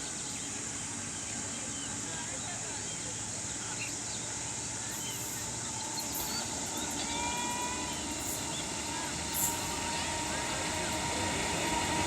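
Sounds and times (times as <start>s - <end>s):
train approaching: 0.0s - 12.0s
faint train horn: 6.0s - 12.0s.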